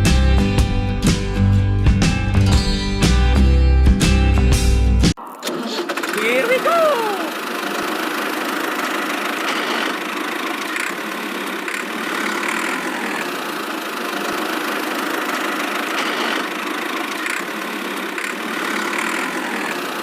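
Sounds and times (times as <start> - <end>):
small motor whirring: 5.8 - 20.0.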